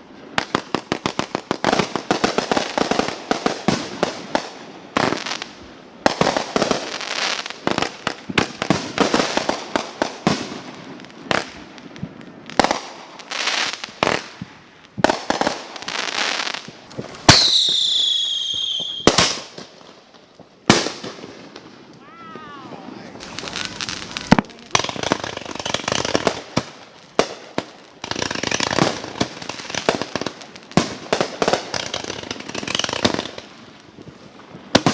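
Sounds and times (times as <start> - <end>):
firework bangs and crackling: 0.0 - 34.9
whistling firework: 15.0 - 19.6, 20.6 - 26.6.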